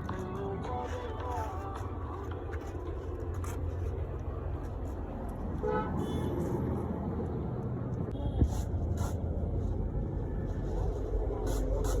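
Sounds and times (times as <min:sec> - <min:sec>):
vehicle engine rumble: 0:00.0 - 0:12.0
car horn toot: 0:05.6 - 0:06.4.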